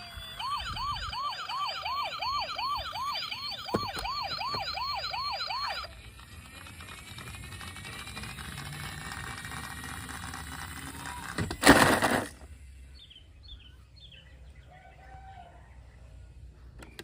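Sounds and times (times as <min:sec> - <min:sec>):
toy electronic siren wailing: 0:00.0 - 0:08.7.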